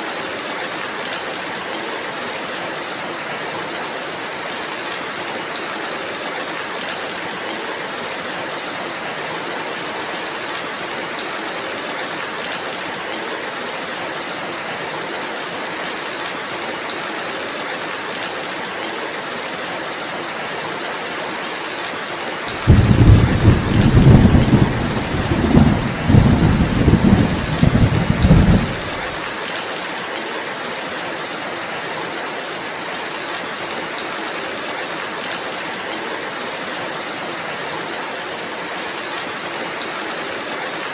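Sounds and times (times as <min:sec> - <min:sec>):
steady rain falling: 0:00.0 - 0:40.9
thunder rumbling: 0:22.5 - 0:29.2.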